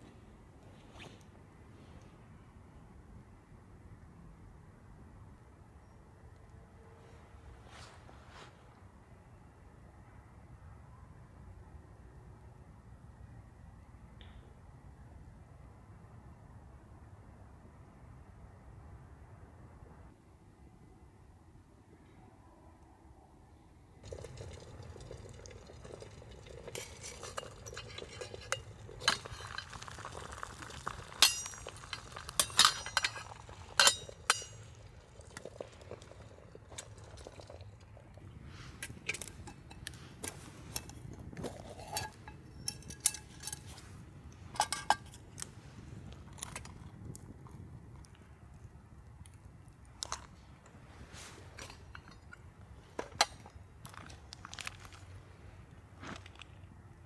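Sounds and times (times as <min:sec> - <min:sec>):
metal cookware clinking: 0:24.0 - 0:34.8, 0:38.8 - 0:45.3.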